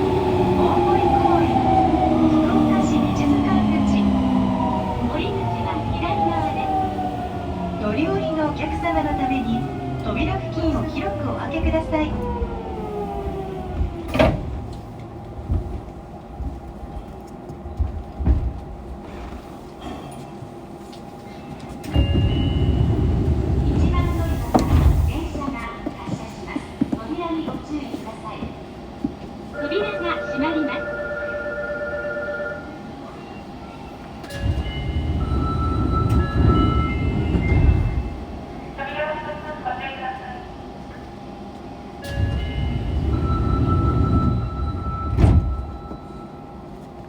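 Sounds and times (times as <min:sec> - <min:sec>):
train car running noise: 0:00.0 - 0:47.0
train braking tone: 0:29.6 - 0:38.2, 0:42.0 - 0:46.9.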